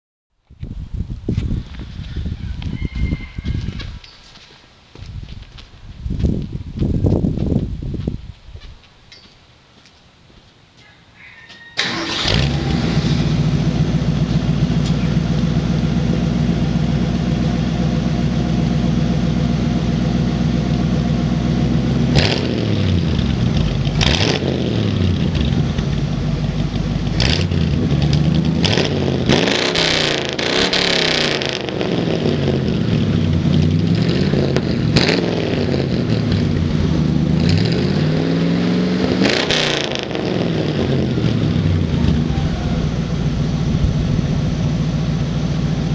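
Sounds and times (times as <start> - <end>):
truck engine idling and revving: 11.8 - 45.9.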